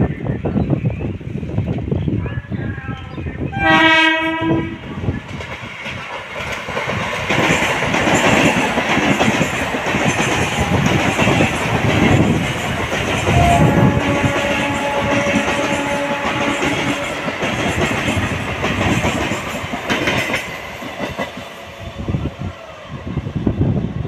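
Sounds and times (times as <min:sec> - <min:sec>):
train horn: 0:03.5 - 0:04.9, 0:10.4 - 0:11.5, 0:13.2 - 0:17.5
train wheels clattering over rails: 0:05.2 - 0:21.8.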